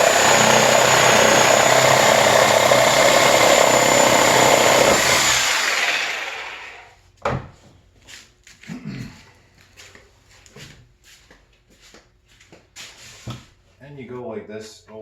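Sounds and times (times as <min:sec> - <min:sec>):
reciprocating saw cutting wood: 0:00.0 - 0:06.9.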